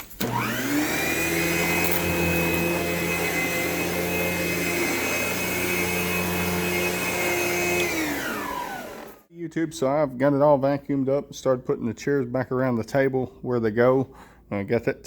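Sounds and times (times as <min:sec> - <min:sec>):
vacuum cleaner motor whine: 0:00.1 - 0:09.2.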